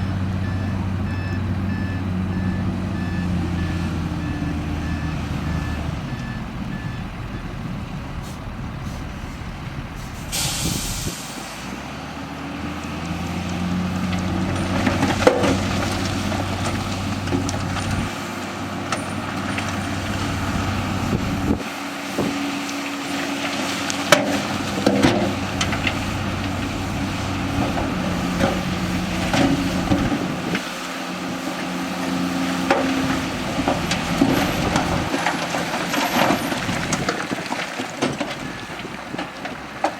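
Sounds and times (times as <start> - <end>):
reversing beeper: 0.0 - 7.6
diesel machinery engines: 0.0 - 39.9
air brake hiss: 8.2 - 9.4, 10.0 - 11.6
clunks and knocks: 14.1 - 18.1, 24.1 - 26.8, 27.5 - 30.6, 32.6 - 39.9.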